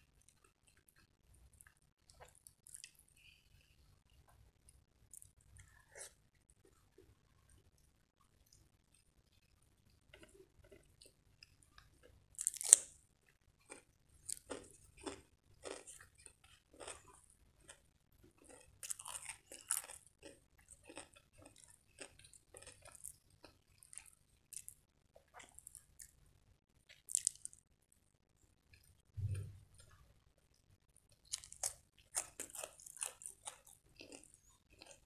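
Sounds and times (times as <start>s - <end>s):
crunchy chewing: 13.6s - 26.1s, 26.9s - 27.6s, 31.1s - 35.0s.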